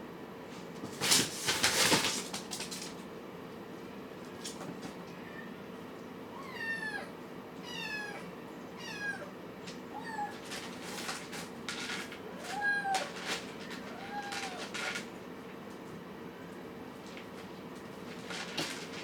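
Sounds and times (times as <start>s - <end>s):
kittens mewing: 12.3s - 15.0s.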